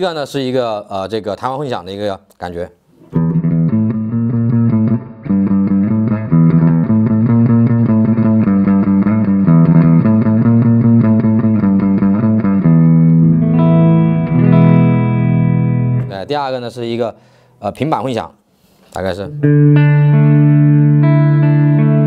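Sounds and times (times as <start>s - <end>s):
electric guitar with reverb: 3.1s - 17.6s, 19.2s - 22.0s.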